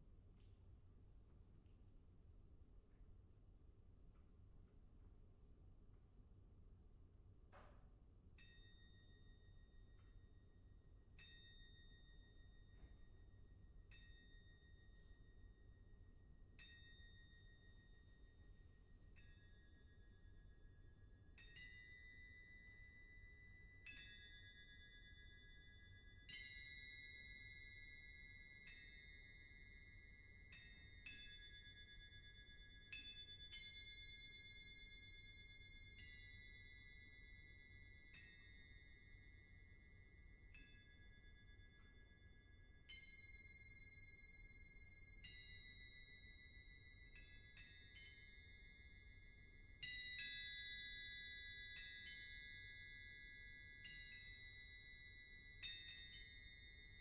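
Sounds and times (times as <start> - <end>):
bell-like metal percussion notes: 21.3 - 57.0.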